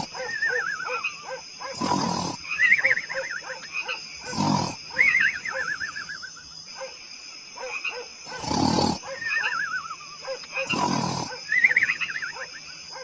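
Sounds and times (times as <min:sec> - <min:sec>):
animal-like roars: 0:01.7 - 0:02.4, 0:08.3 - 0:09.0, 0:10.6 - 0:11.4.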